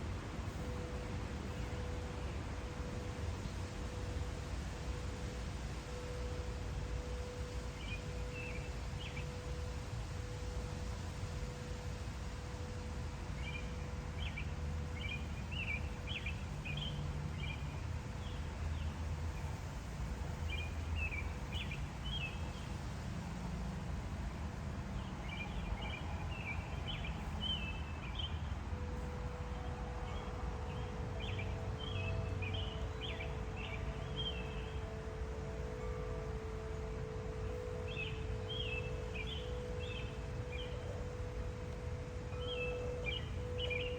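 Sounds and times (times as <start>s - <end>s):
wind chimes ringing: 0.0s - 23.0s, 23.8s - 43.9s
birds chirping: 24.9s - 43.9s.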